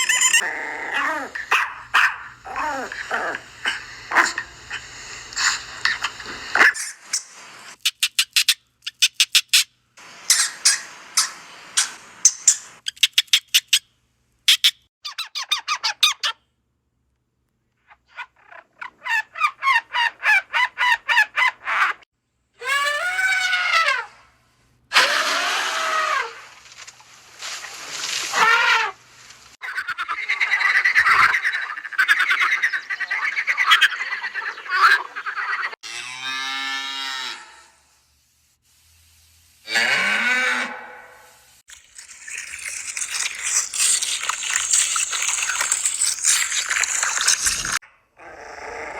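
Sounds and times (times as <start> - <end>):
animal calls rising and falling: 0.0 - 6.9, 24.9 - 26.6, 27.4 - 29.0, 29.6 - 37.6, 39.7 - 48.9
animal chattering: 0.0 - 7.0, 29.6 - 35.8, 41.7 - 47.8.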